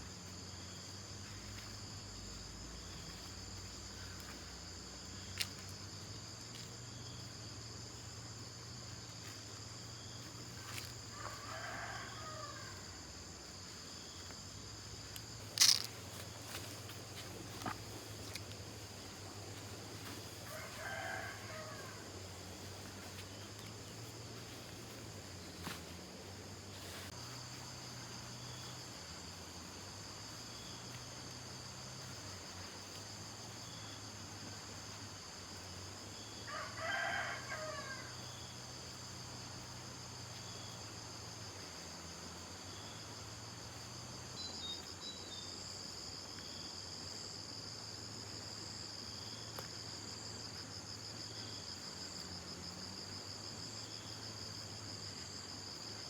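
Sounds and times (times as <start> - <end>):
insects chirring: 0.0 - 56.0
rooster crowing: 11.1 - 13.0, 20.4 - 22.2, 36.4 - 38.3.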